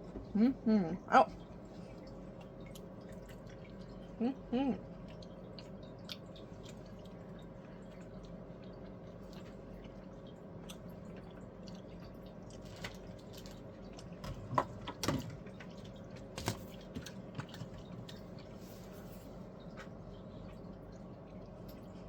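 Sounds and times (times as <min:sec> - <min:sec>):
steady low hum: 0:00.0 - 0:22.0
wet mouth clicks eating: 0:05.0 - 0:12.6.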